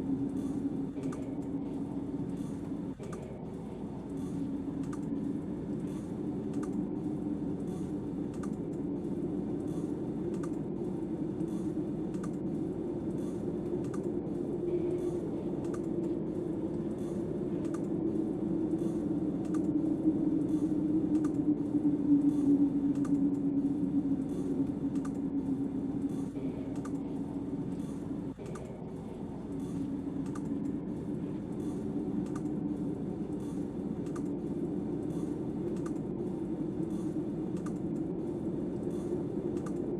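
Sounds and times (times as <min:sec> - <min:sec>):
gusting storm wind: 0:00.0 - 0:39.9
faint regular ticking: 0:04.0 - 0:18.0.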